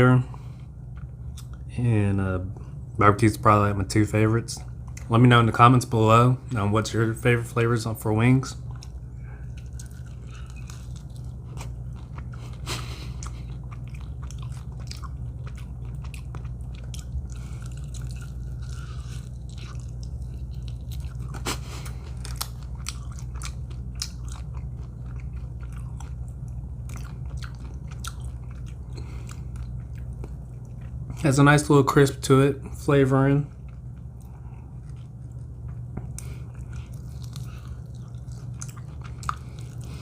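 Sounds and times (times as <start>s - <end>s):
steady low hum: 0.0s - 40.0s
person chewing crispy chicken: 8.6s - 31.3s, 33.4s - 40.0s.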